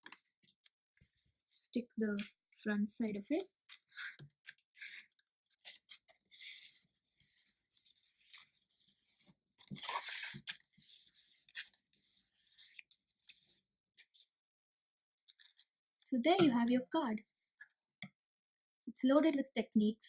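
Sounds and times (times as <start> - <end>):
paper crinkling and rustling: 3.7 - 14.3.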